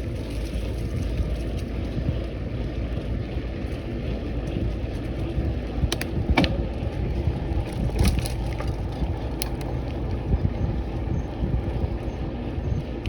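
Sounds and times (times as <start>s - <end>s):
bicycle tyres rolling on gritty path: 0.0s - 13.0s
wind buffeting microphone: 0.0s - 13.0s
grit clicks and crackles: 7.1s - 11.0s.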